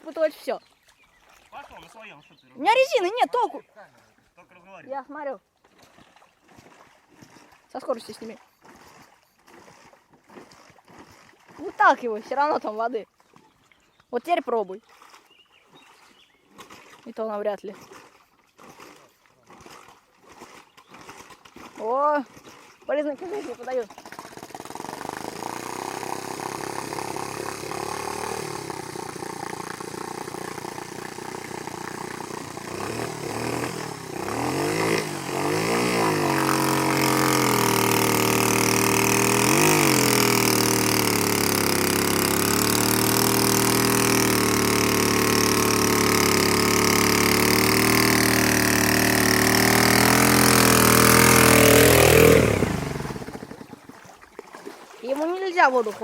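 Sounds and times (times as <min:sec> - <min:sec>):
small engine revving: 0:07.2 - 0:12.5, 0:17.8 - 0:54.0.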